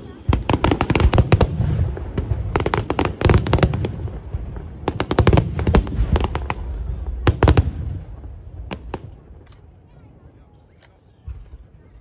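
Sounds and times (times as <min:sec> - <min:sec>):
fireworks cracks and bangs: 0:00.0 - 0:09.4.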